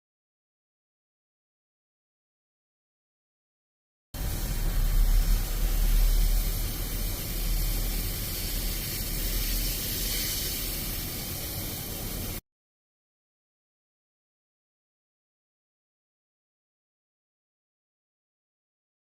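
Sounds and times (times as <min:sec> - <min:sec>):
low rumble: 0:04.2 - 0:09.3
steady hissing: 0:04.2 - 0:12.4.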